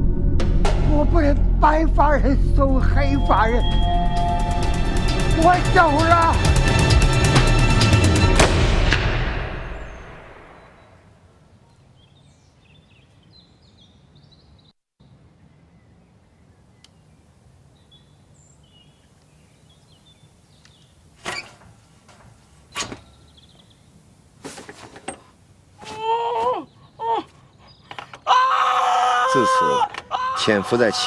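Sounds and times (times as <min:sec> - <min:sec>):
loud bang: 0:08.3 - 0:10.8.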